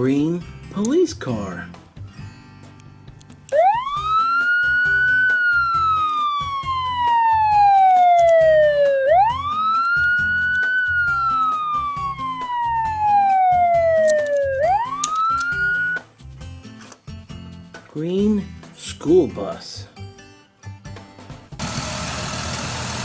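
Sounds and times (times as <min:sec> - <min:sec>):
police siren wailing: 0:03.5 - 0:16.0.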